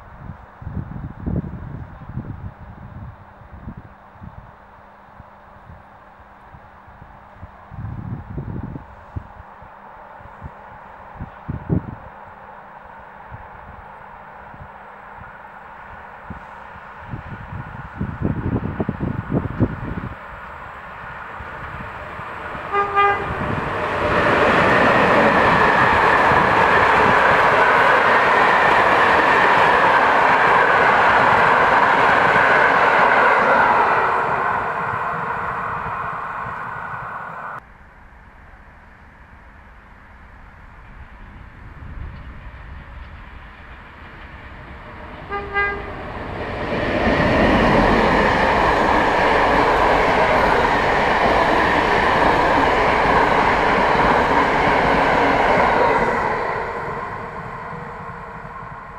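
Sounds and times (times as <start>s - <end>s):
train wheels running on rails: 7.3s - 37.6s, 40.2s - 58.9s
train horn toot: 22.6s - 23.7s, 45.2s - 46.1s.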